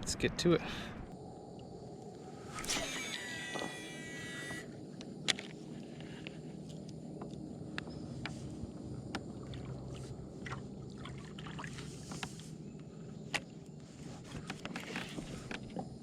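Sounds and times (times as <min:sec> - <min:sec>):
water rumbling against kayak hull: 0:07.2 - 0:16.0.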